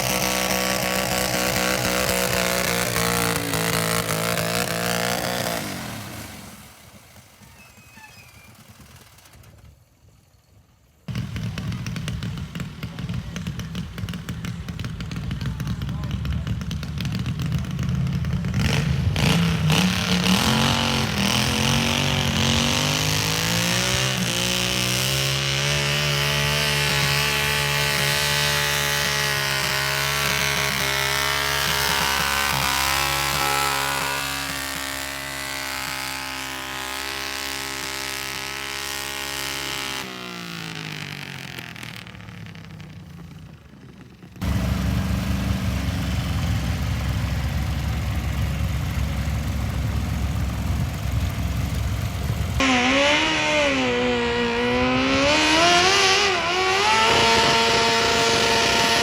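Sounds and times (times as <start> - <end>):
tractor engine revving: 0.0 - 9.6, 11.1 - 59.0.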